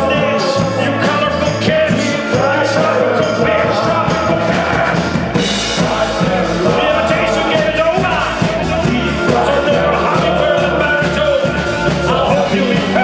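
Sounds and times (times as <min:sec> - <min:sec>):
bass and guitars: 0:00.0 - 0:13.0
drums keeping a beat: 0:00.0 - 0:13.0.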